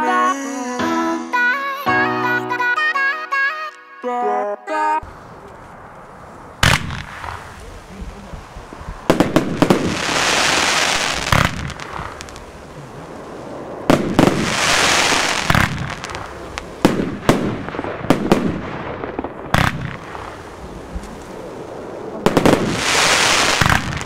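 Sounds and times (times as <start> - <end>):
firework bangs: 6.5 - 24.0
firework hissing crackle: 6.6 - 24.0.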